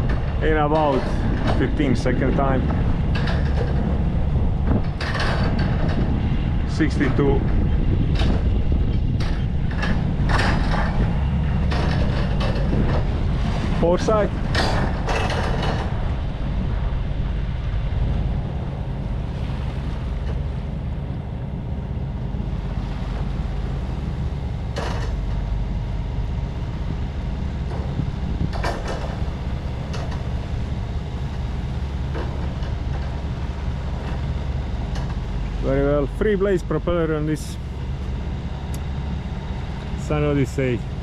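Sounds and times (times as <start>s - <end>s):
marine diesel engine running: 0.0s - 41.0s.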